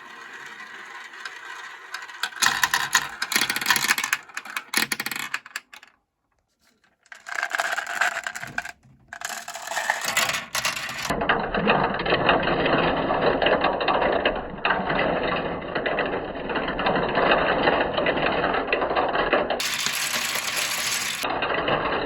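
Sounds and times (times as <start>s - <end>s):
marbles rattling down plastic track: 0.0s - 5.9s, 6.9s - 11.2s, 15.9s - 21.3s.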